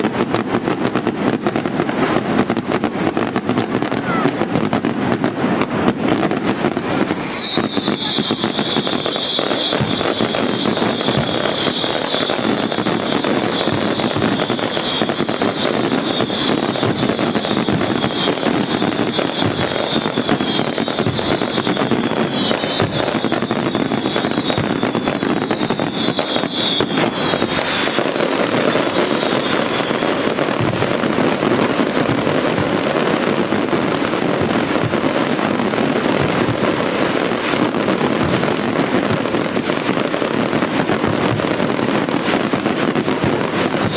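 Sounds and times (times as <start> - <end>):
fireworks bangs: 0.0 - 43.9
high shrill whistling: 6.5 - 30.2.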